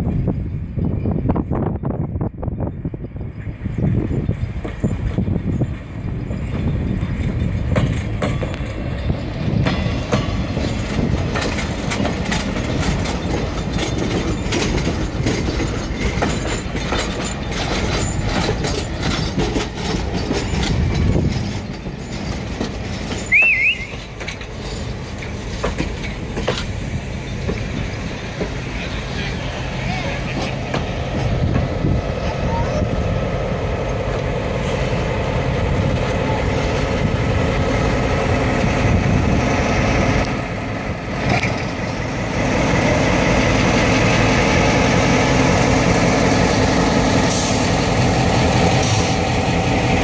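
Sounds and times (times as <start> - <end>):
train cars rumbling past: 0.0 - 50.0
wheels clicking over rail joints: 4.4 - 32.0.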